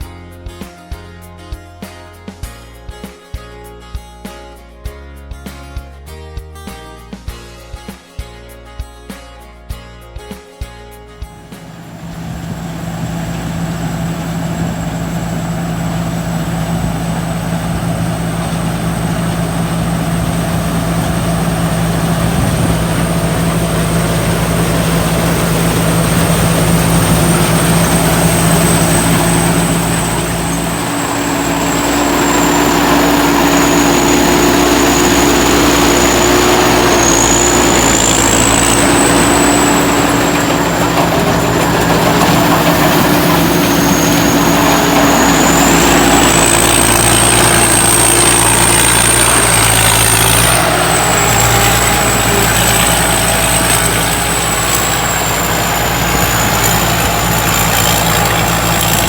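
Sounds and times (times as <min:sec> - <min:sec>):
combine harvester engine: 0:11.4 - 0:59.0
thin high whine: 0:11.4 - 0:59.0.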